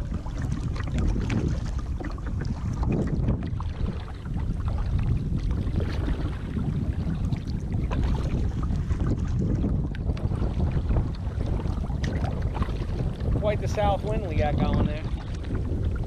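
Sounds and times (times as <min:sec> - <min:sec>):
small water splashes: 0:00.0 - 0:16.0
wind buffeting microphone: 0:00.0 - 0:16.0.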